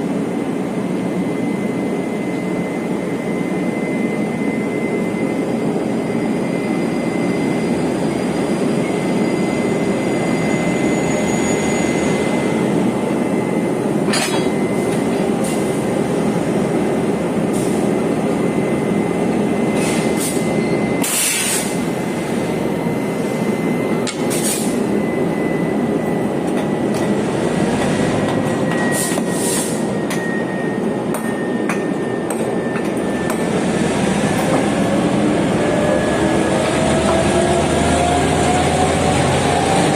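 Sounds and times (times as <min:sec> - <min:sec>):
train wheels rumbling on rail: 0:04.8 - 0:39.9
thin high squeal: 0:08.9 - 0:12.4.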